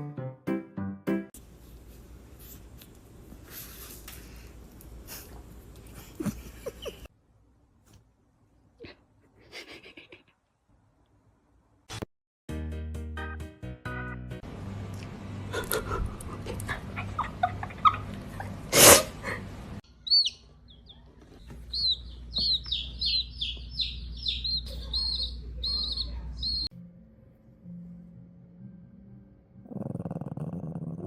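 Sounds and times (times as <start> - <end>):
small bird chirping: 19.9 - 26.7.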